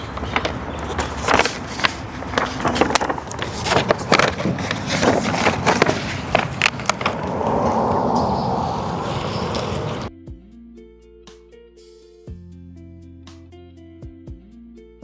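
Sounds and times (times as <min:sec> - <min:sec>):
vinyl film crackling: 0:00.0 - 0:10.1.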